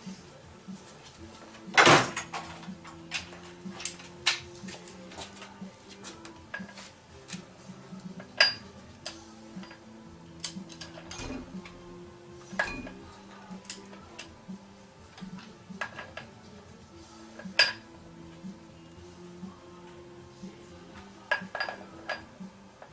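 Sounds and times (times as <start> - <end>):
metallic clinks of tools: 12.6 - 13.0.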